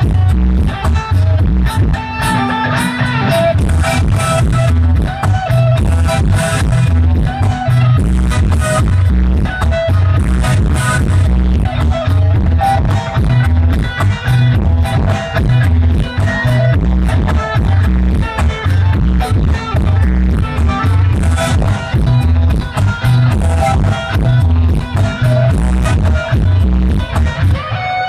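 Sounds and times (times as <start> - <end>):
guitar: 0.0 - 28.0
heavy bass: 0.0 - 28.0
live band through speakers: 0.0 - 28.0.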